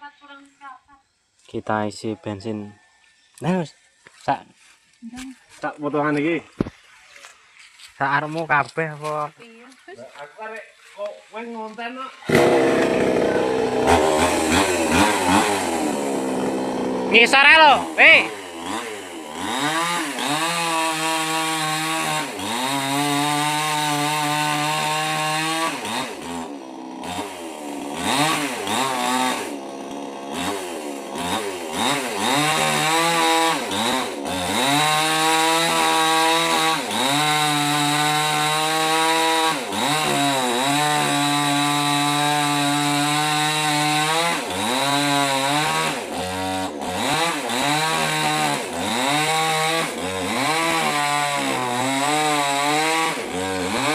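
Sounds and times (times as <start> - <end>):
chainsaw cutting wood: 12.2 - 53.9.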